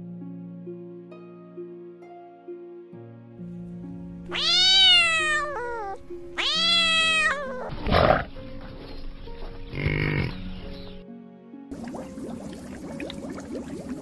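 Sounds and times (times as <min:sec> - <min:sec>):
background music with held notes: 0:00.0 - 0:14.0
kitten meowing: 0:04.3 - 0:07.9.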